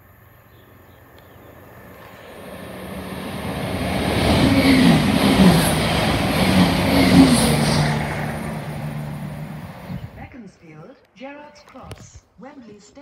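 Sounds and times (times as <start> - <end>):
train wheels rumbling: 1.2 - 10.3.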